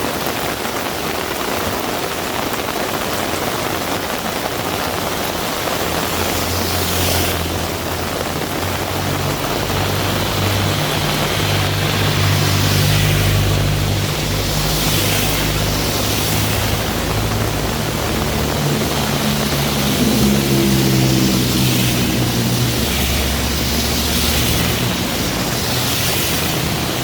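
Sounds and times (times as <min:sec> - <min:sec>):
heavy rain falling: 0:00.0 - 0:27.0
vehicle engine humming: 0:05.2 - 0:27.0.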